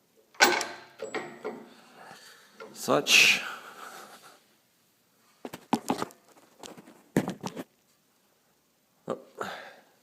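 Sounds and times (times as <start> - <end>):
metal parts knocking and clunking: 0.3 - 1.8.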